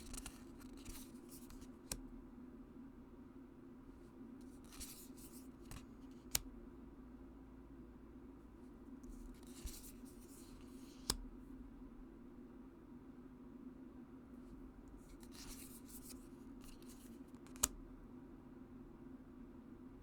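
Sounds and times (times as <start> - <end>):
cards sliding papery swishes: 0.0 - 2.0, 4.4 - 6.4, 9.0 - 11.2, 15.0 - 17.7
steady low hum: 0.0 - 20.0.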